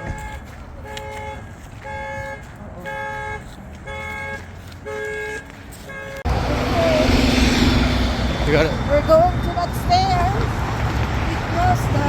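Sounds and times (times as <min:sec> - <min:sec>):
car alarm two-tone horn: 0:00.0 - 0:06.5, 0:08.1 - 0:10.6.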